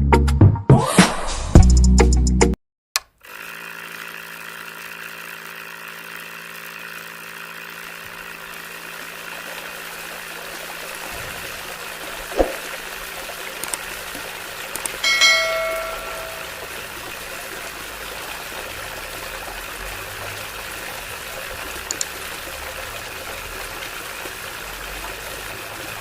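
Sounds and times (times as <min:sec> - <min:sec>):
small electric motor humming: 0:03.2 - 0:12.2.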